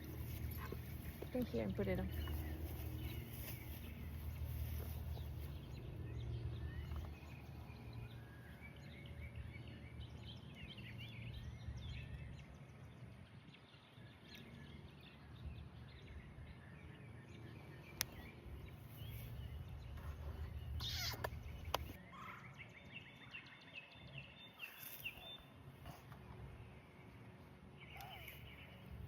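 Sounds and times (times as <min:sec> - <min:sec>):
low steady rumble: 0:00.0 - 0:22.0
birds chirping: 0:00.0 - 0:29.0.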